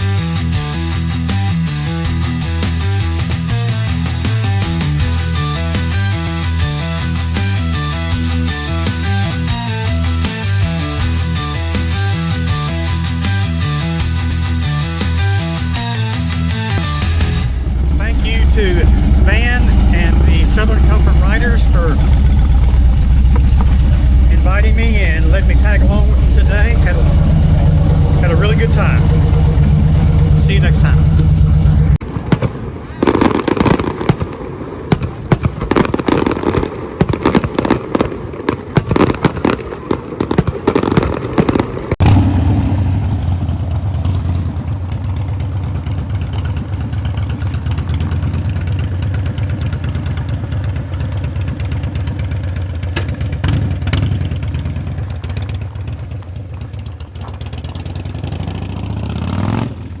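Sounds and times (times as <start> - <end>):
motorcycle engine cruising: 0.0 - 32.0, 42.0 - 60.0
irregular crackling and rattling: 16.7 - 32.0, 42.0 - 58.7.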